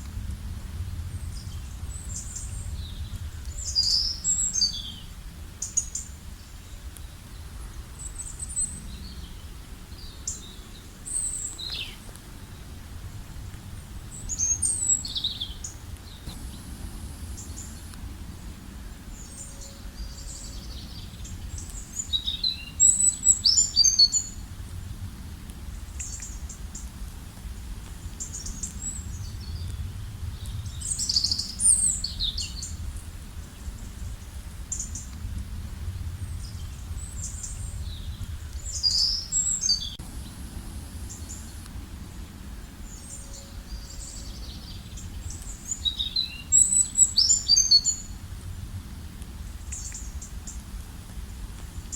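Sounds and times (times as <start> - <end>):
low background rumble: 0.0 - 47.0
birds chirping and trilling: 36.2 - 40.4.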